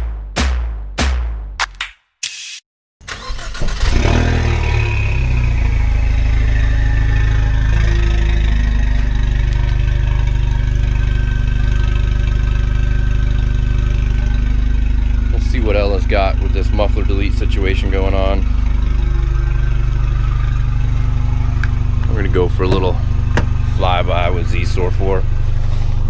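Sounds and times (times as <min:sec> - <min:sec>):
car engine starting and idling: 0:03.0 - 0:26.0.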